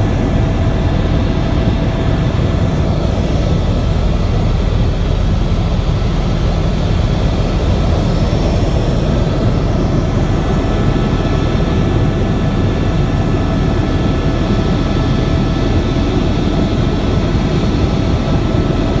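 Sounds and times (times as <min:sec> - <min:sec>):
faint steady whines: 0:00.0 - 0:19.0
helicopter engine and rotor noise: 0:00.0 - 0:19.0.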